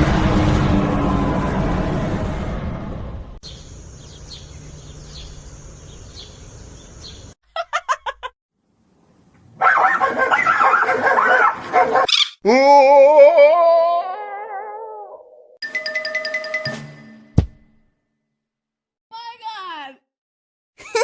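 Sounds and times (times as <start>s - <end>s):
dog barking: 9.6s - 12.1s
dog yipping: 9.6s - 12.4s
dog howling: 12.8s - 15.6s.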